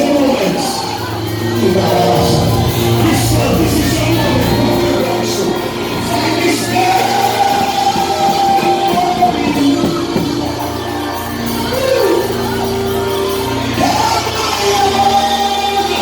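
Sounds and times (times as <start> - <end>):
band playing worship music: 0.0 - 16.0
person singing: 1.7 - 10.5.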